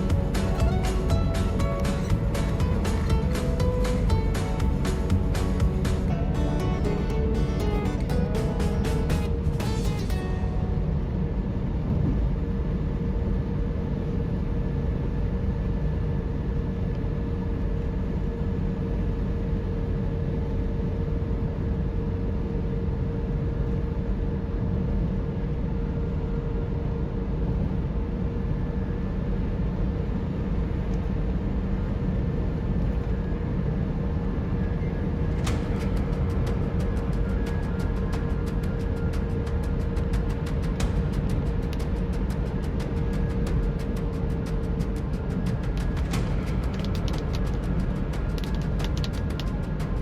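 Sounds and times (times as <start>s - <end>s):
regular ticking: 0.0s - 9.3s
car road and engine noise: 0.0s - 50.0s.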